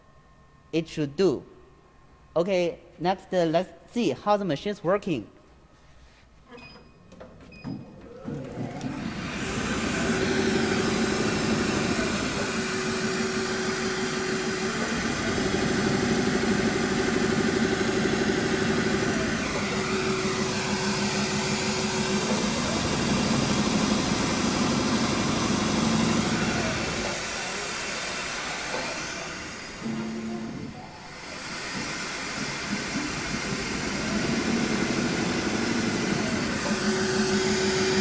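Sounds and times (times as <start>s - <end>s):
upholstery machine punching: 7.8s - 38.0s.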